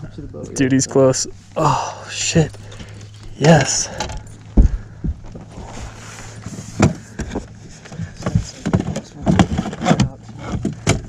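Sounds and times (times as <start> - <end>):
steady low hum: 0.0 - 11.0
knocks and thumps in a boat: 3.9 - 11.0.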